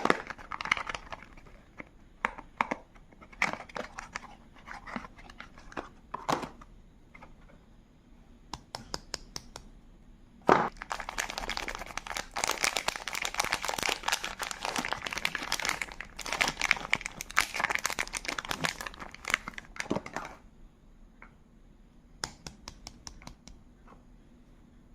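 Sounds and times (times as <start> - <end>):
wrapper crinkling and tearing: 0.0 - 1.5, 10.7 - 20.3.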